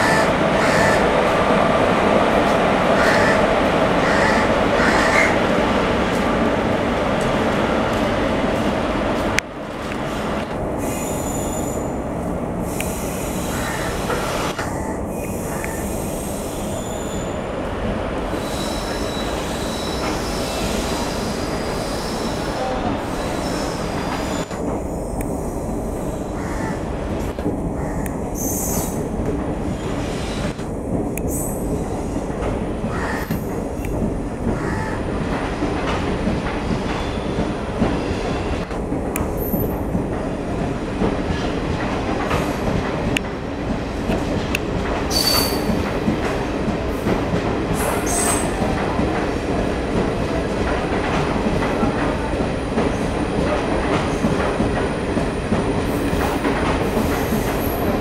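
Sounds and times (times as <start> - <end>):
train rumbling on rails: 0.0 - 58.0
high wheel squeals: 18.4 - 24.5.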